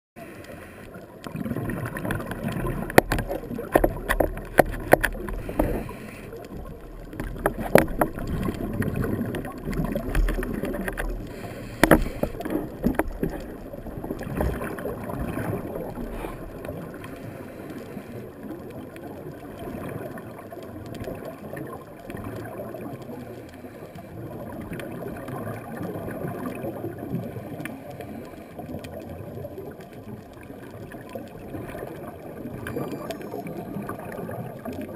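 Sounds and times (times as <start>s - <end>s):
scuba regulator breathing: 0.2s - 1.2s, 5.1s - 6.7s, 10.8s - 13.4s, 16.0s - 18.4s, 23.3s - 24.3s, 27.1s - 28.7s
bubbles gurgling: 1.0s - 17.5s, 18.2s - 23.4s, 24.2s - 27.6s, 28.6s - 34.9s
sharp clicks and knocks: 2.0s - 5.9s, 6.5s - 14.6s.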